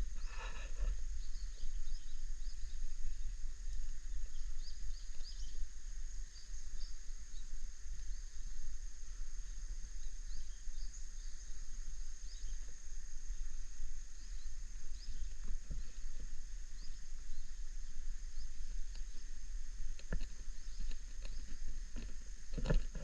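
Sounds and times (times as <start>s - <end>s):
bird chirps: 0.0s - 5.6s, 13.3s - 19.3s
high insect drone: 0.0s - 23.0s.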